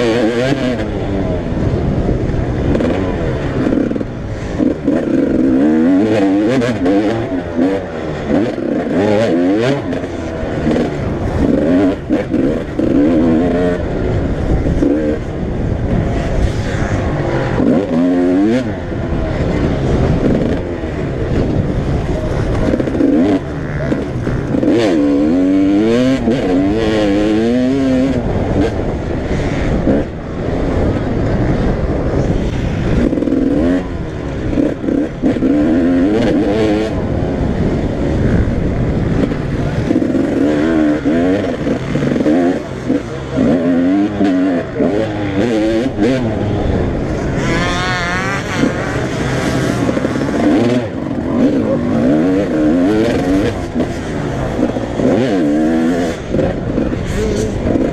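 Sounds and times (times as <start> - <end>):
motocross bikes revving: 0.0 - 57.9.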